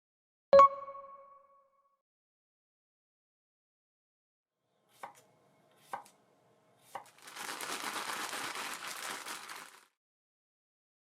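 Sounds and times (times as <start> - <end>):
knife chopping on cutting board: 4.9 - 5.2, 5.8 - 6.1.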